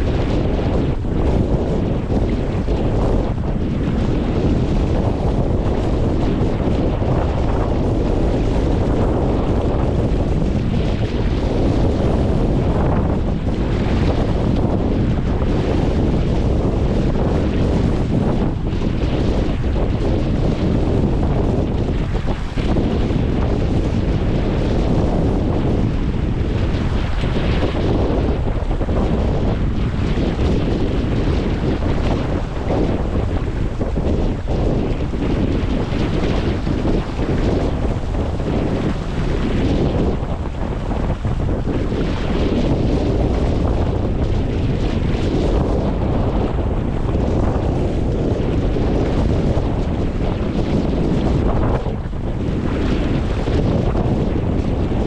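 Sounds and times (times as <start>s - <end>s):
water rushing along hull: 0.0s - 55.0s
wind buffeting microphone: 0.0s - 55.0s.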